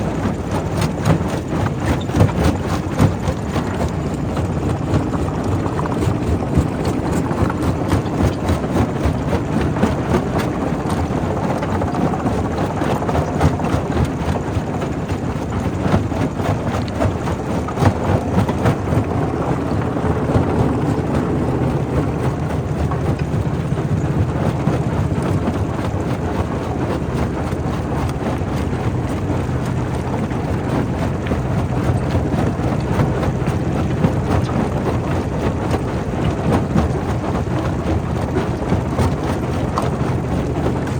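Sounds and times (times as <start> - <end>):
rock crusher drone: 16.8 - 24.4.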